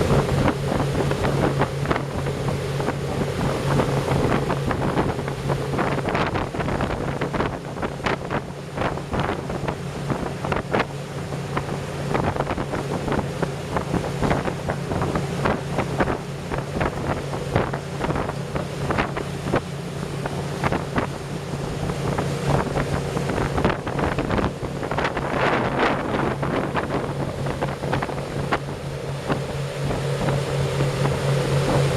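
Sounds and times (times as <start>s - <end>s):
motorboat engine humming: 0.0s - 31.9s
wind buffeting microphone: 0.0s - 31.9s.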